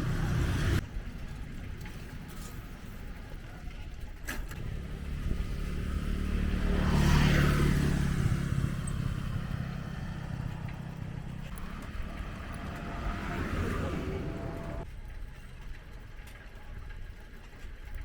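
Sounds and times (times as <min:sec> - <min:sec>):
vehicle passing by: 0:00.0 - 0:00.9, 0:04.6 - 0:14.9.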